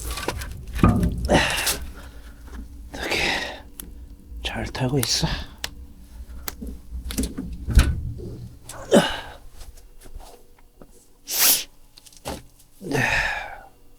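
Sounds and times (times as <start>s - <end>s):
hissing burst: 0.0s - 9.7s
logs and iron door clunking: 0.0s - 9.8s.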